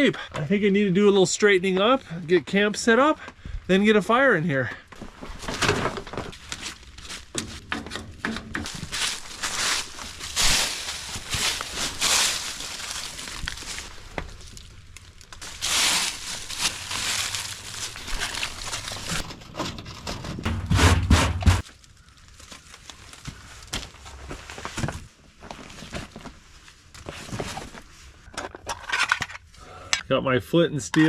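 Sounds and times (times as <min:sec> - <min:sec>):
rustling and crinkling gear: 0:04.6 - 0:20.7, 0:21.6 - 0:29.6.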